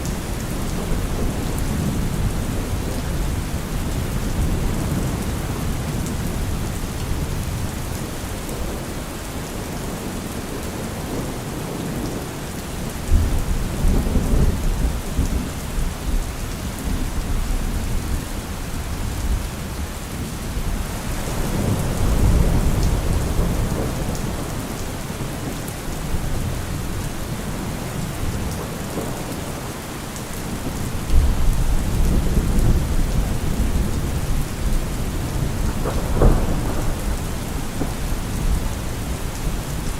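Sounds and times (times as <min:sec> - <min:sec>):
steady rain falling: 0:00.0 - 0:39.9
thunder rumbling: 0:20.6 - 0:29.4, 0:30.5 - 0:39.9.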